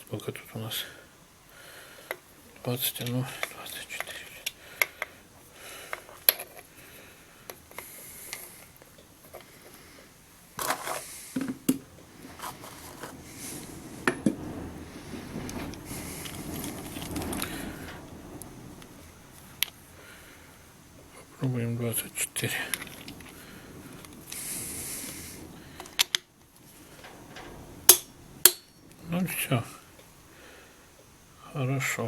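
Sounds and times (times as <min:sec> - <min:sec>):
soft scraping and rustling: 0:02.0 - 0:31.1
short rattle: 0:12.1 - 0:21.3, 0:21.9 - 0:30.3
metal hand tools clinking: 0:27.0 - 0:29.0.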